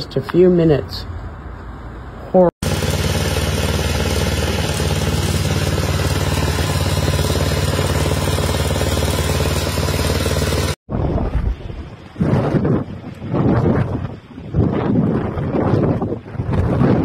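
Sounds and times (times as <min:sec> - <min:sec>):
engine running with loud rumble: 0:02.6 - 0:10.8
wind gusting on microphone: 0:10.9 - 0:17.0.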